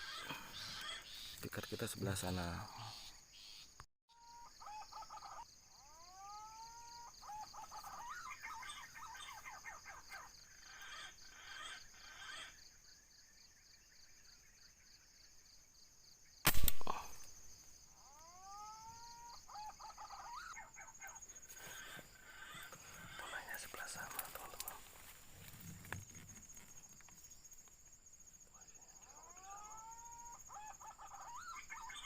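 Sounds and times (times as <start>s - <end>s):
bird chirps: 0.0s - 24.9s, 28.6s - 32.0s
loud sharp crack: 16.4s - 17.4s.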